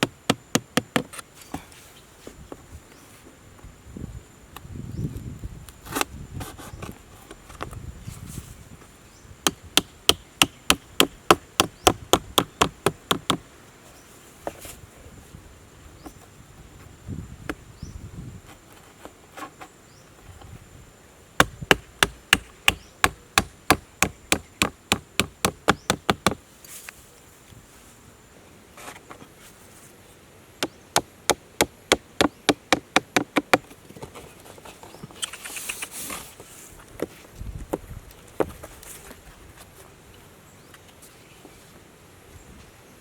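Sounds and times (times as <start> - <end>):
sharp hammering blows: 0.0 - 1.1, 9.4 - 13.4, 21.4 - 26.4, 30.6 - 33.6
faint high insect drone: 0.0 - 43.0.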